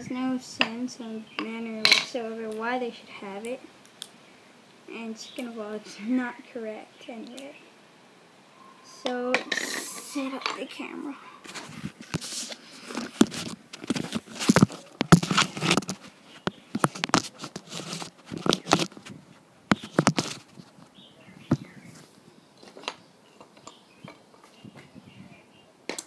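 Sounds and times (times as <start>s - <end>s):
camera handling rustling and knocks: 11.5s - 20.8s.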